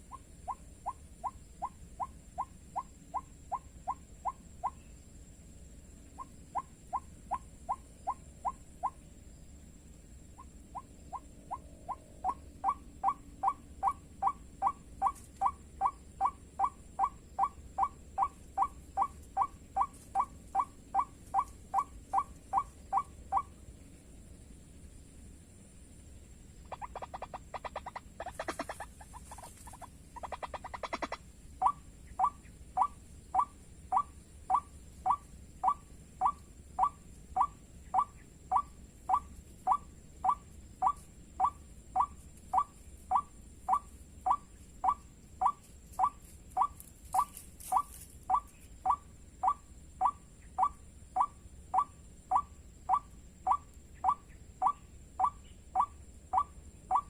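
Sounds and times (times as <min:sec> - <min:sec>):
waterhen chattering: 0:26.7 - 0:32.4.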